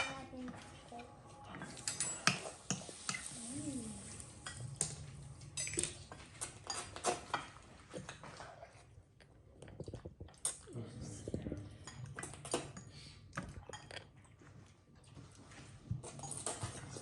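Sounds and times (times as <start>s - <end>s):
cutlery clinking on plates: 1.6s - 3.4s, 4.4s - 8.3s.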